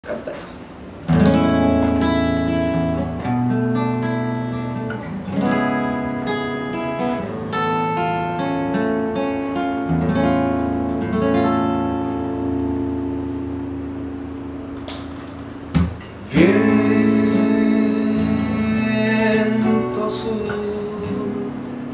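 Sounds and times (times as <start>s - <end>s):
acoustic guitar strumming chords: 1.0s - 21.9s.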